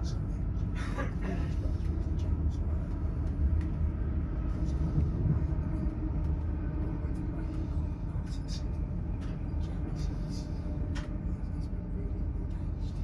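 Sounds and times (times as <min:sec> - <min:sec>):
train rumble on board: 0:00.0 - 0:13.0.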